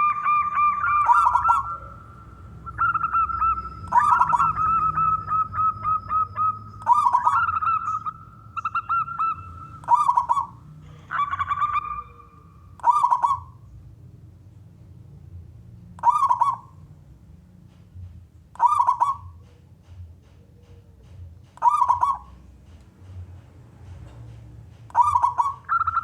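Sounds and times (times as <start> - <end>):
dove cooing: 0.0 - 13.7, 16.0 - 16.7, 18.6 - 19.5, 21.6 - 22.5, 24.9 - 26.0.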